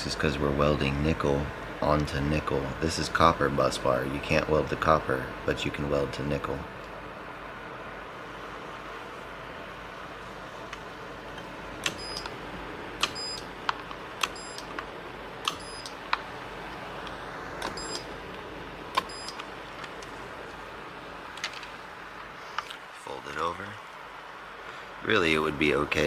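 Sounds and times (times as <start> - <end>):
steady background noise: 0.0 - 26.0
spot welder snaps: 13.0 - 20.1
high electronic beep: 15.6 - 15.9, 17.8 - 18.0, 19.1 - 19.4.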